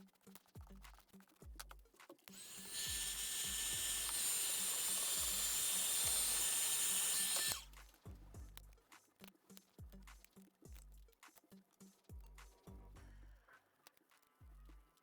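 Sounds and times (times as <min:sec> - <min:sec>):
small electric tool whining: 0:02.3 - 0:07.8.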